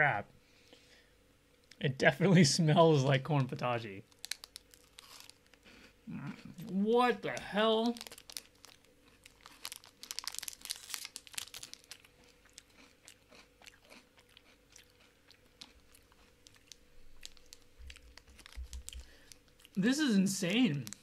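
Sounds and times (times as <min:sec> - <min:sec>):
crunching chocolate bar: 0:04.0 - 0:05.6, 0:07.3 - 0:19.8, 0:20.5 - 0:21.0.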